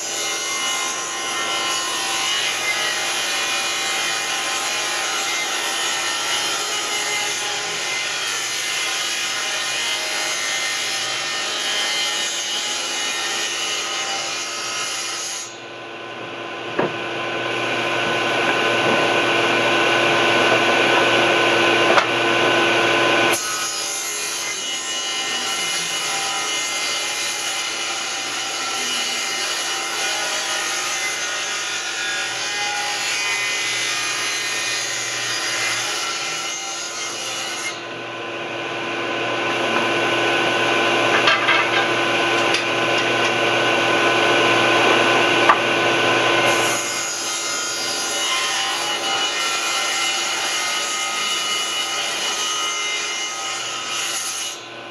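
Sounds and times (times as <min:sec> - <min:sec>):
electric power tool cutting wood: 0:38.7 - 0:52.4.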